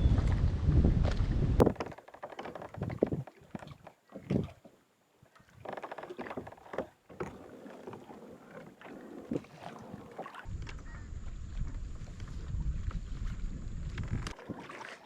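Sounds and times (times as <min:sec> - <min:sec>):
wind buffeting microphone: 0:00.0 - 0:01.8, 0:10.5 - 0:14.4
kayak and fishing gear knocking: 0:01.0 - 0:04.6.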